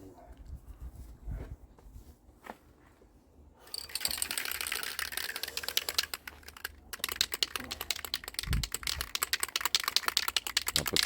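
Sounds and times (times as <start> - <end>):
spray can ball rattling: 3.7 - 11.0
spray paint can hissing: 4.1 - 11.0.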